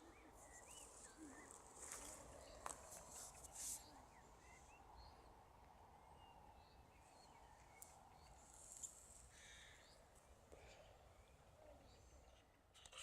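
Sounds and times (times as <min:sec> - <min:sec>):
faint distant birdsong: 0:00.0 - 0:13.0.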